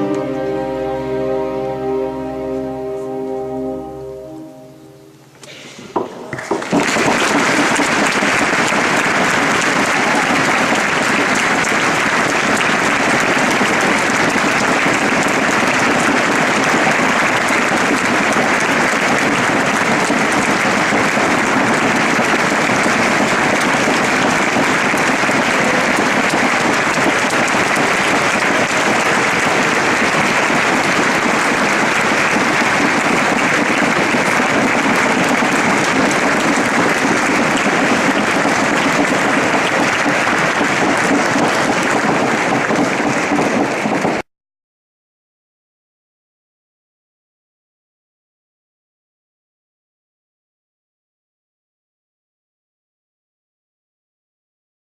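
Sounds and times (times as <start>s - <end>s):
audience applauding: 5.4s - 44.3s.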